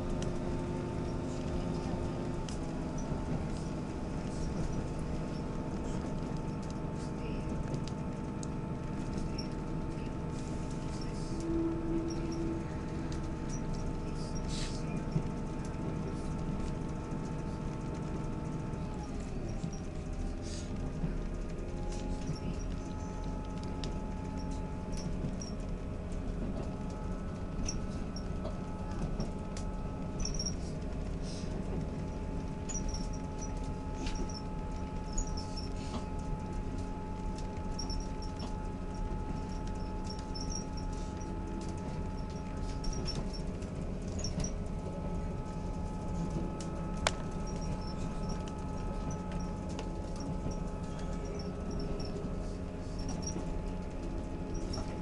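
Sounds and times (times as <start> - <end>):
drive whine: 0.0 - 55.0
train wheels rumbling: 0.0 - 55.0
carriage squeaks and rattles: 17.8 - 55.0.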